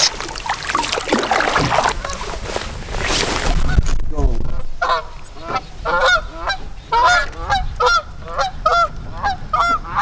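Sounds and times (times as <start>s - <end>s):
geese honking: 4.8s - 10.0s.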